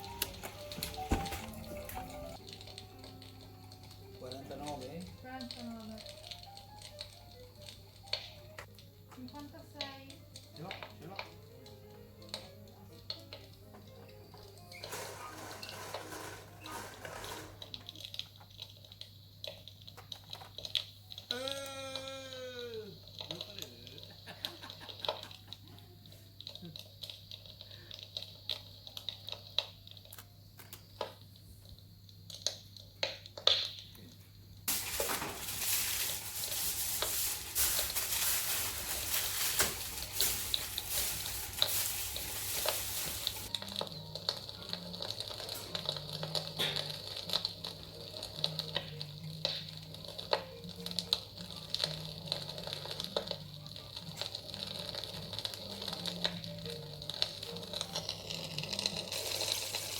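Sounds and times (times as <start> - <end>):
meat sizzling and crackling: 0.0 - 34.0, 34.6 - 59.9
loud hiss: 34.7 - 43.5.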